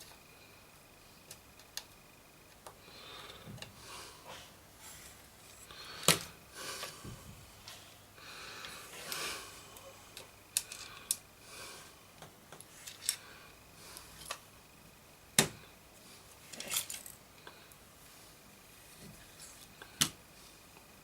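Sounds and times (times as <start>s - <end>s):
tools and parts clicking: 16.5s - 17.2s.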